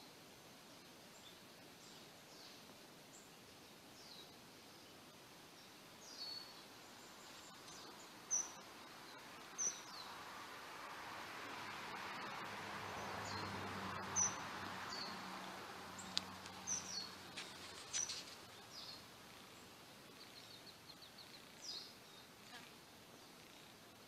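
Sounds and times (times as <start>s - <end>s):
soft hiss: 0.0s - 24.0s
bird chirps: 5.6s - 10.2s, 13.0s - 15.2s, 16.0s - 22.6s.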